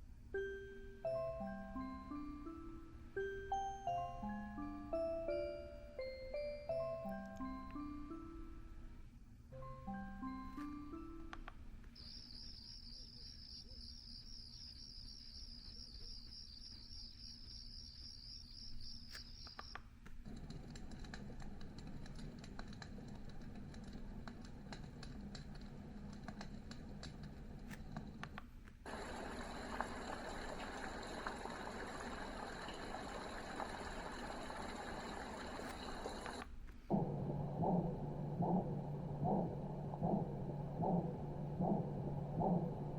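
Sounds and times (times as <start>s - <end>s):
low steady noise: 19.8s - 42.9s
white noise hiss: 28.5s - 37.4s
warbling chirping tone: 30.5s - 42.9s.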